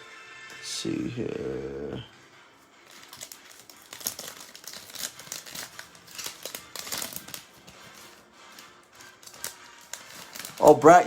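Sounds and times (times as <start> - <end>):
plastic wrapper crinkling: 2.8 - 11.0.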